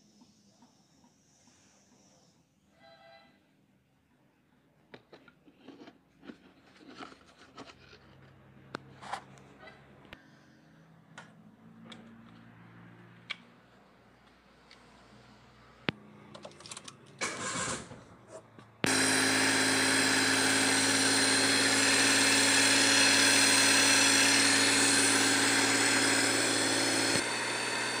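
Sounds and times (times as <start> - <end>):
car engine running: 18.9 - 28.0.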